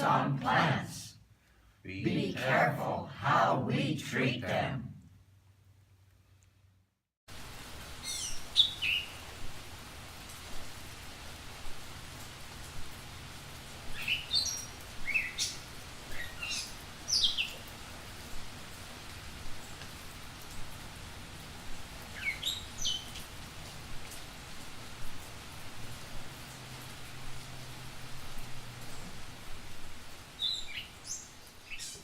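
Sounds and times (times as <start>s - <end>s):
steady background hiss: 0.0s - 32.0s
small bird chirping: 30.4s - 32.0s.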